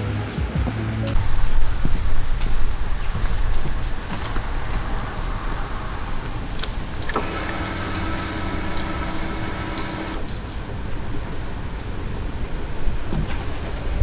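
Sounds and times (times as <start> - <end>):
motorcycle engine rumbling: 0.0 - 14.0
steady whine: 1.1 - 14.0.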